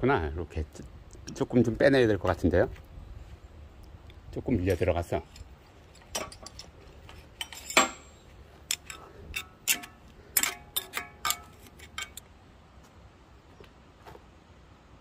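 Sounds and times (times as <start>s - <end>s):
sharp metal knocks and clinks: 5.3s - 12.2s.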